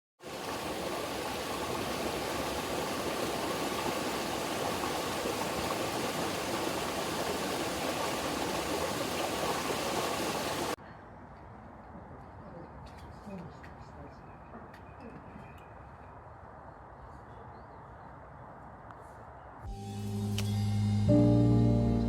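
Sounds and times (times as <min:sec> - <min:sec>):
mountain stream rushing: 0:00.2 - 0:10.8.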